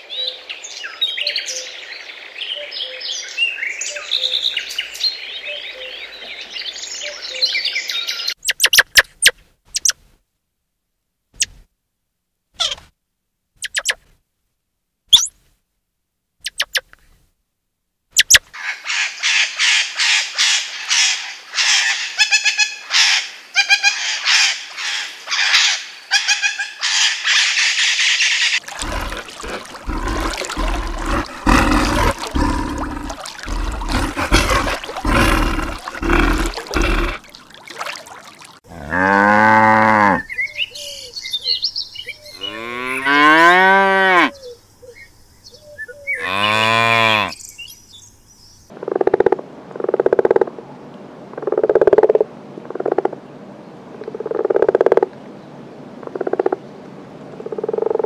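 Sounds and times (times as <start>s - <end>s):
cattle mooing: 28.7s - 37.3s, 38.7s - 40.2s, 46.2s - 47.3s.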